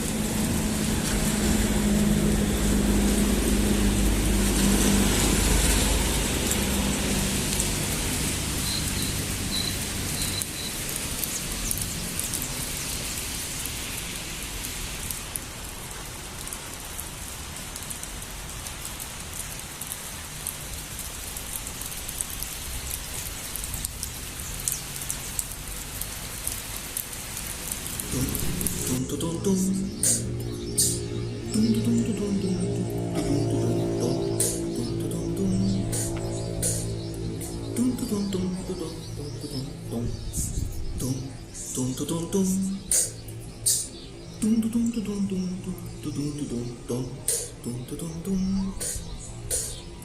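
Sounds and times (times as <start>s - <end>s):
vehicle engine hum: 0.0s - 13.4s, 27.6s - 50.0s
gentle rain falling: 0.0s - 50.0s.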